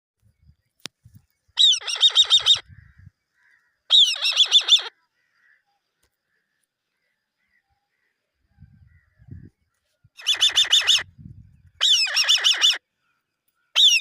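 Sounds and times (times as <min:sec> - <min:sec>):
eagle chirping: 0:01.6 - 0:03.1, 0:03.9 - 0:04.9, 0:10.2 - 0:12.8, 0:13.7 - 0:14.0.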